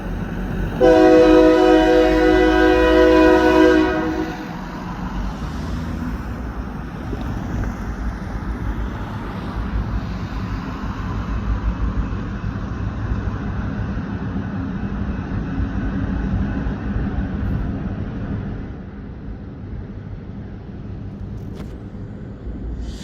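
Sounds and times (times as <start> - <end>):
diesel locomotives idling: 0.0 - 23.0
wind buffeting microphone: 6.0 - 23.0.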